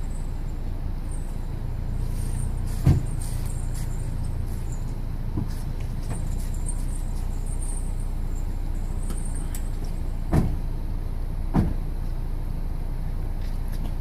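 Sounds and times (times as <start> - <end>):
vehicle idling: 0.0 - 14.0
dull thumps: 9.9 - 10.7, 11.5 - 11.8.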